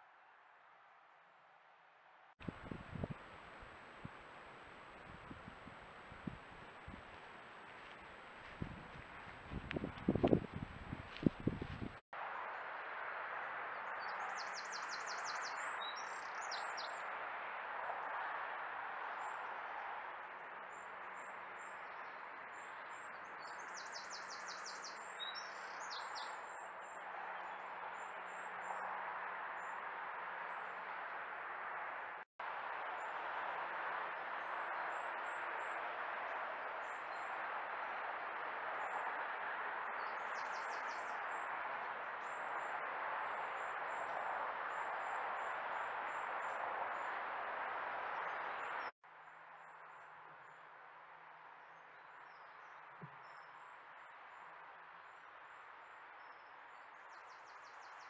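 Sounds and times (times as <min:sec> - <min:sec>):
distant road traffic: 0:01.7 - 0:58.0
small birds chirping: 0:14.0 - 0:17.0, 0:20.7 - 0:28.6, 0:40.0 - 0:41.5.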